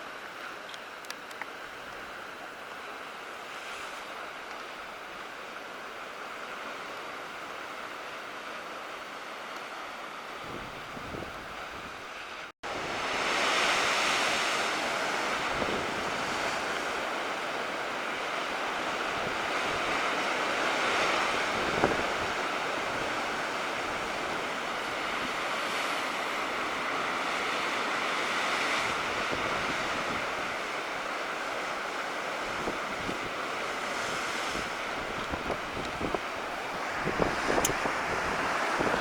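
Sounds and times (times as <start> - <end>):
wind noise on microphone: 10.4 - 12.1, 15.2 - 17.1, 19.0 - 25.8, 28.4 - 30.6, 32.4 - 39.0
surf breaking on shore: 10.4 - 39.0.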